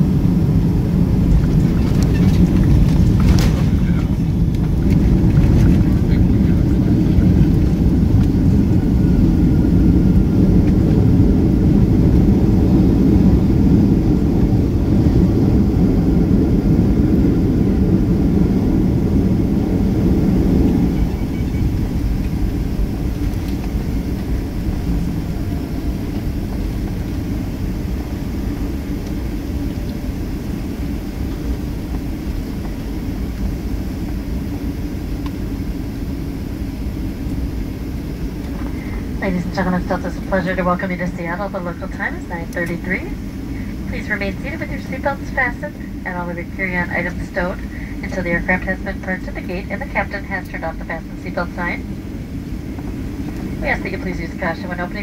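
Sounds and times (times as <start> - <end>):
aircraft cabin rumble: 0.0 - 55.0
cabin hum: 0.0 - 55.0.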